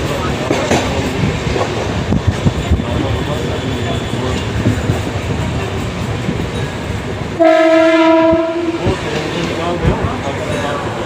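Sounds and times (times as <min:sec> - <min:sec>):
train wheels clattering on track: 0:00.0 - 0:11.0
train horn blast: 0:07.4 - 0:08.9.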